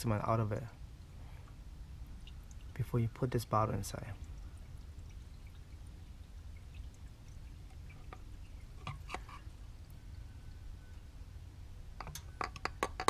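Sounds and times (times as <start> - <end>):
liquid pouring: 0.4 - 10.3.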